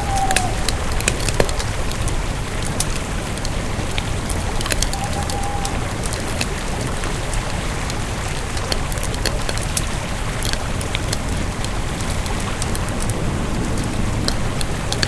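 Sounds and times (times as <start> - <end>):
low rumble of flames: 0.0 - 15.0
wood crackling and snapping: 0.0 - 15.0.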